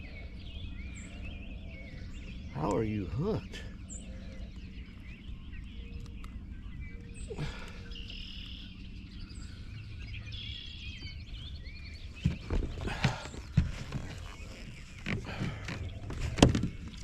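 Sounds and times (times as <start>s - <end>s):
low outdoor rumble: 0.0s - 17.0s
songbirds chirping: 0.0s - 17.0s.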